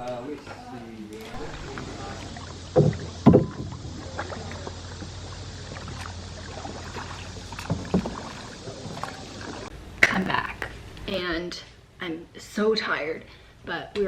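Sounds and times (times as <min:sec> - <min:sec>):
wind: 0:00.0 - 0:11.3
water rushing: 0:01.2 - 0:10.9
sharp knocks: 0:02.7 - 0:04.0.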